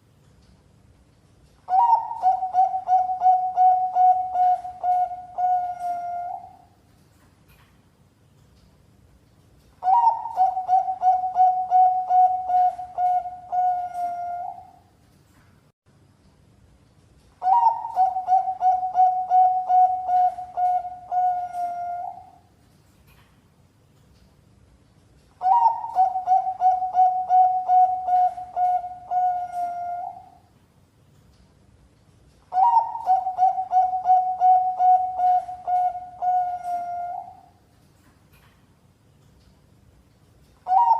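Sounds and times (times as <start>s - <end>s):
dove cooing: 1.7s - 6.7s, 9.8s - 14.8s, 17.4s - 22.4s, 25.4s - 30.4s, 32.5s - 37.5s, 40.7s - 40.9s.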